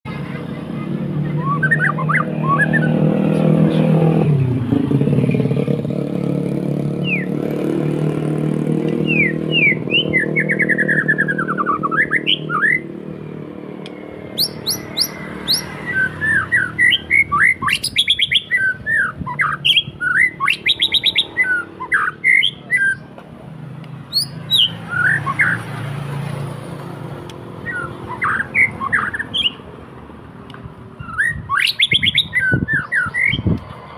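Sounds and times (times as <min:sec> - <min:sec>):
vehicle engine running: 0:00.1 - 0:29.4
songbird whistling song: 0:01.2 - 0:04.1, 0:07.0 - 0:07.4, 0:08.9 - 0:12.9, 0:14.2 - 0:23.1, 0:24.1 - 0:25.7, 0:27.6 - 0:29.6, 0:31.0 - 0:33.6.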